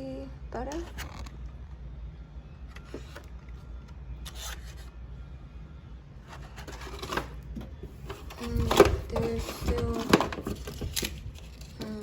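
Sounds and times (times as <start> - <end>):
refrigerator hum: 0.0 - 12.0
food packages rustling: 6.4 - 12.0.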